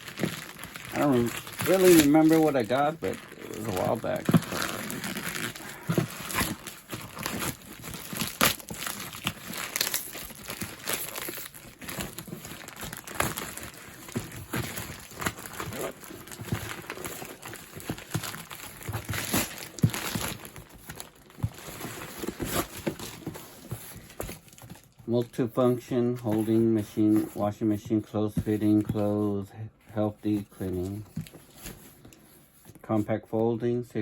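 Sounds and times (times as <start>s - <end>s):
plastic packaging crinkling: 0.0s - 25.0s.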